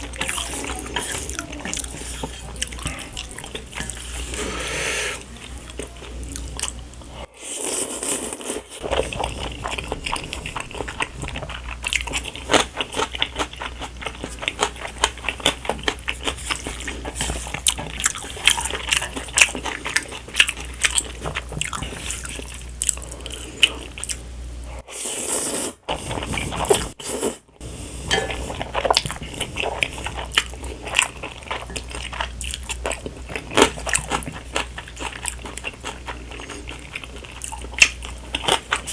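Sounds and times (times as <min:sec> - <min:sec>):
wet chewing and smacking: 0:00.0 - 0:04.0, 0:08.2 - 0:24.2, 0:28.6 - 0:38.9.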